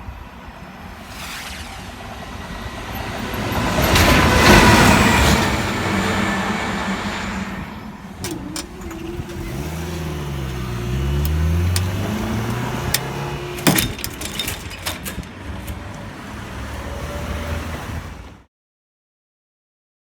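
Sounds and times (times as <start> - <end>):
vehicle engines running: 3.2 - 18.4
sharp clatter of knocks: 8.2 - 17.3.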